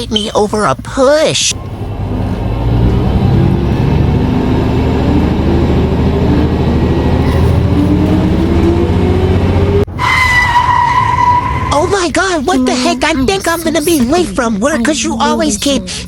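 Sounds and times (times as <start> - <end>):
car engine accelerating: 1.6 - 12.0.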